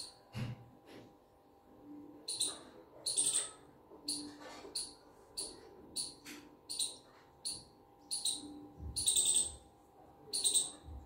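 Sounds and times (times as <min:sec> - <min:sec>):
bird chirping: 0:02.2 - 0:09.6, 0:10.2 - 0:11.0.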